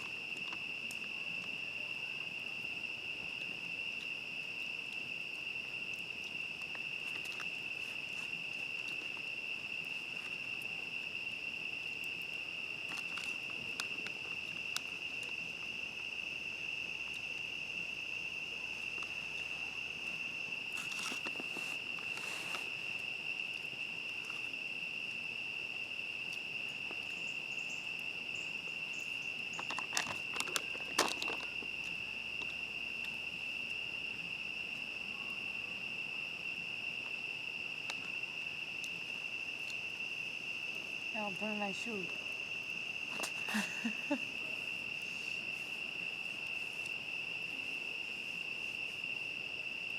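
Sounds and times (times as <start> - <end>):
crickets trilling: 0.0 - 49.9
clicks and crackles: 12.0 - 15.4, 20.7 - 24.5, 29.5 - 33.2, 43.1 - 43.6.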